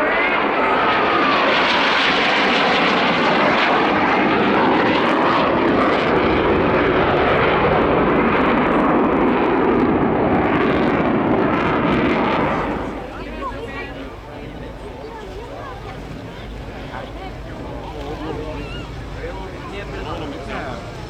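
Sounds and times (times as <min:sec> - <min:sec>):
aircraft engines running loud: 0:00.0 - 0:21.0.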